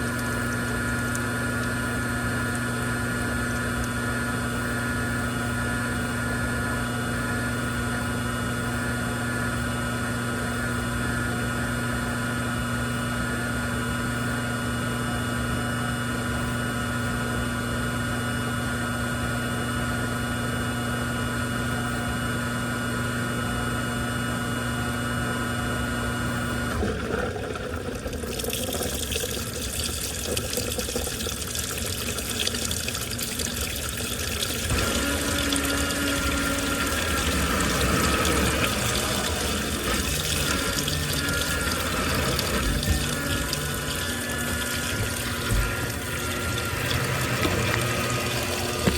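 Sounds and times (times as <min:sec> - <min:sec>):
washing machine humming: 0:00.0 - 0:48.9
water rushing into machine: 0:26.6 - 0:48.9.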